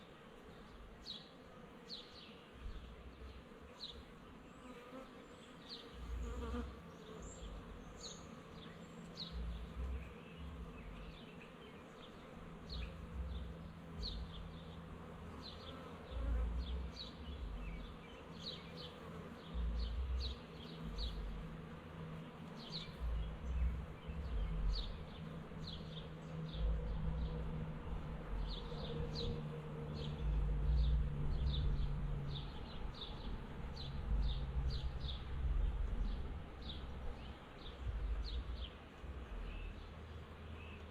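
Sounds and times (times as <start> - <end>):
bee swarm buzzing: 0.0 - 40.9
low rumbles: 26.5 - 29.4, 30.2 - 39.9.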